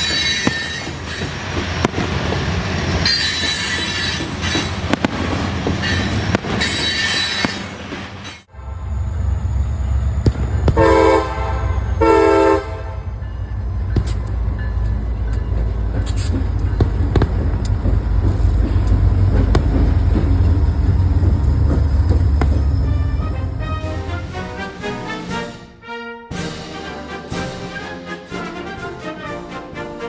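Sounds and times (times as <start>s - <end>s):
freight train rumbling past: 0.0s - 30.0s
locomotive air horn blasts: 8.5s - 13.2s, 22.4s - 30.0s.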